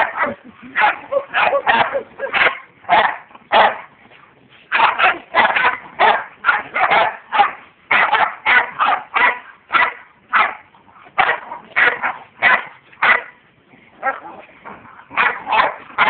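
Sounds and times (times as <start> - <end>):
dog barking: 0.0 - 3.9, 4.7 - 10.6, 11.2 - 13.4, 15.2 - 16.0.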